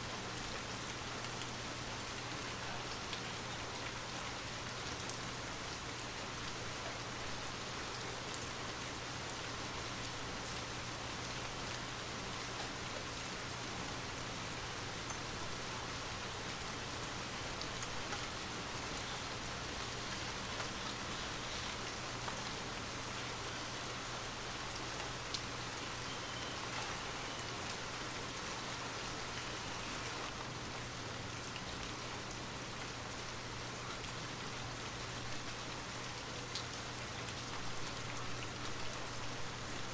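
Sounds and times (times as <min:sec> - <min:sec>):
steady rain hiss: 0:00.0 - 0:39.9
rain drop ticks: 0:17.5 - 0:22.6, 0:24.7 - 0:28.3.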